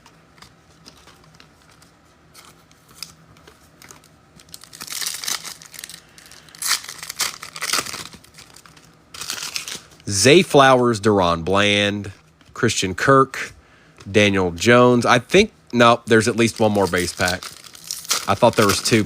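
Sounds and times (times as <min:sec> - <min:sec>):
plastic wrapper crinkling and tearing: 0:00.4 - 0:10.1, 0:16.1 - 0:19.0.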